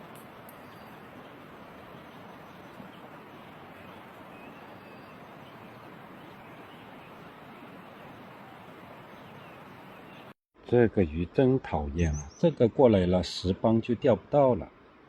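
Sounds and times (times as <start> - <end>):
stream water flowing: 0.0 - 10.3
faint bird chirps: 0.5 - 1.4, 2.0 - 10.4, 12.0 - 12.6.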